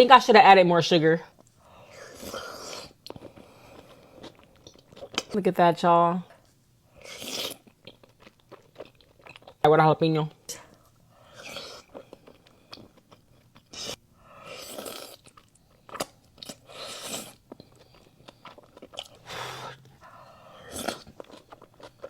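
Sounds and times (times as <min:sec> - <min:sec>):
person chewing food: 0:01.8 - 0:05.3, 0:07.0 - 0:09.6, 0:10.7 - 0:22.0.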